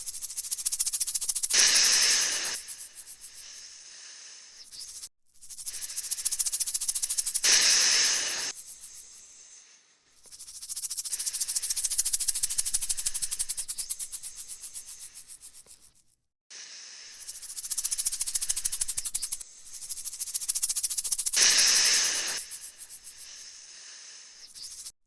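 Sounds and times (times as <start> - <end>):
snake hissing: 0.0 - 15.6, 16.5 - 25.0
rattlesnake tail rattling: 0.0 - 16.0, 16.6 - 25.0.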